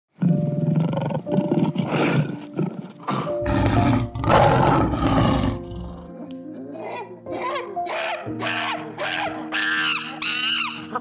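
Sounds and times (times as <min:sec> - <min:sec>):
background music with held notes: 0:00.1 - 0:11.0
large animal roaring: 0:00.2 - 0:06.8.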